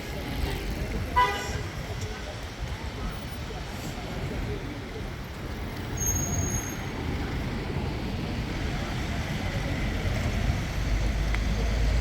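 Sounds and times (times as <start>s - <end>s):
train rumbling: 5.3s - 12.0s.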